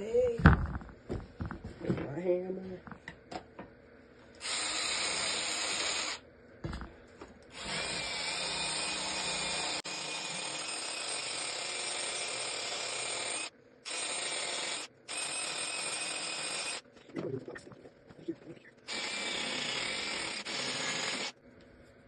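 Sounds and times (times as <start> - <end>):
power drill running: 4.4 - 6.2, 7.5 - 16.8, 18.9 - 21.4.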